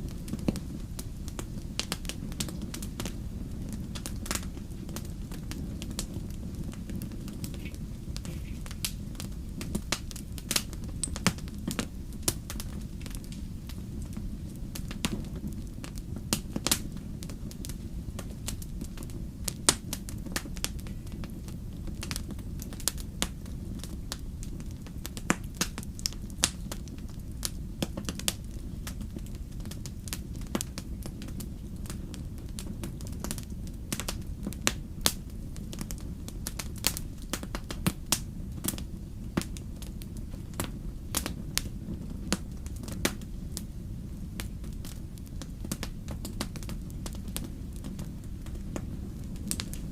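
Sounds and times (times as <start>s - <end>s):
fire crackling and popping: 0.0s - 49.9s
low rumble of flames: 0.0s - 49.9s.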